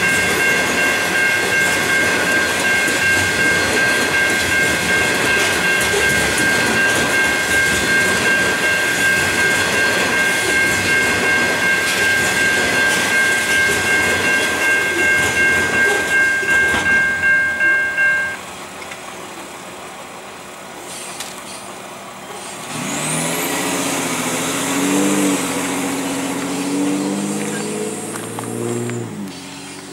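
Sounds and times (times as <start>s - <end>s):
steady high ringing: 0.0s - 18.5s
train wheels clattering: 0.0s - 19.1s
pickup truck engine: 13.6s - 29.9s.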